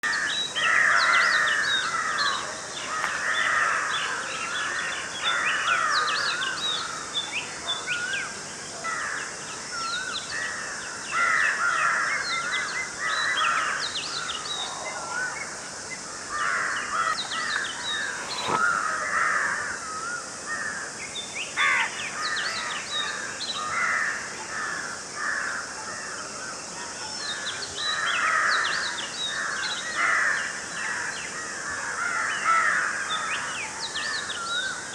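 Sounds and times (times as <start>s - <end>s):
harsh crow-like bird calls: 0.0s - 7.0s, 27.9s - 34.8s
steady high hiss: 12.1s - 32.0s.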